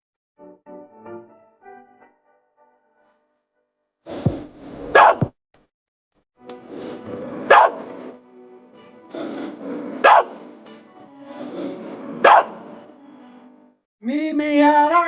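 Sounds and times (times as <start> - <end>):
background music: 0.4 - 3.3, 6.4 - 15.0
dog barking: 4.9 - 5.3, 7.4 - 7.9, 9.8 - 10.4, 12.1 - 12.7.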